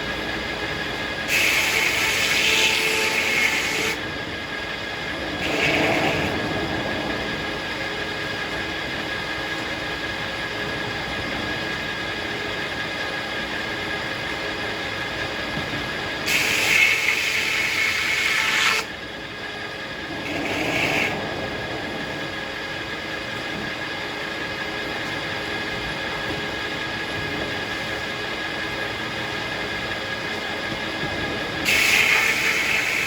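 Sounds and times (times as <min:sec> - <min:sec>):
circular saw whining: 0:00.0 - 0:33.0
harsh saw cutting: 0:01.3 - 0:04.0, 0:16.2 - 0:18.9, 0:31.6 - 0:33.0.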